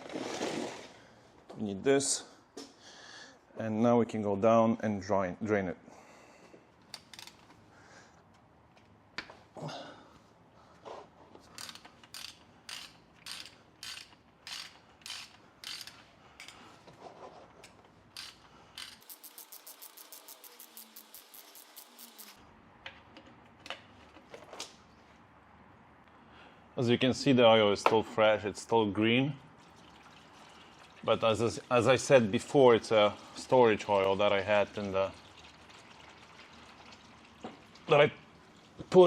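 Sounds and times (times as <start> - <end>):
ratchet wrench clicking: 11.5 - 16.6, 18.1 - 22.4.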